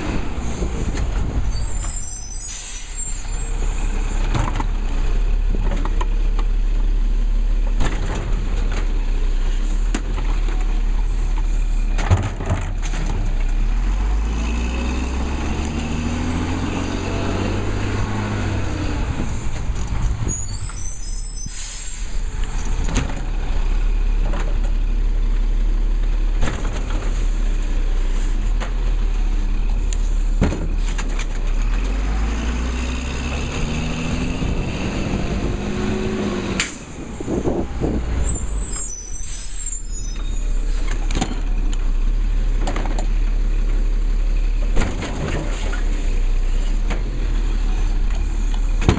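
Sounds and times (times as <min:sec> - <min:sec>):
air brakes hissing and squealing: 0:00.3 - 0:04.2, 0:09.4 - 0:09.9, 0:19.2 - 0:22.3, 0:28.0 - 0:28.5, 0:36.6 - 0:41.5.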